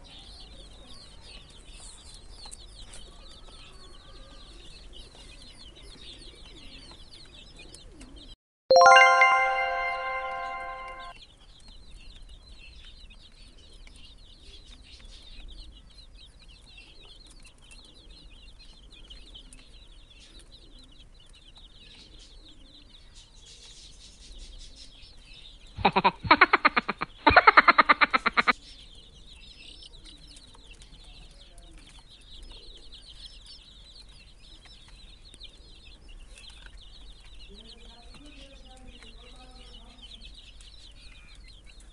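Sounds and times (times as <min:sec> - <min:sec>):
baby chicks peeping: 0:00.0 - 0:41.9
chime: 0:08.7 - 0:11.1.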